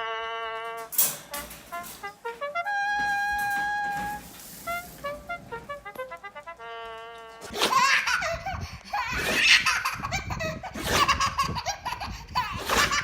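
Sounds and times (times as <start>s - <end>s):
held musical note: 0.0s - 7.6s
young child laughing: 7.5s - 13.0s.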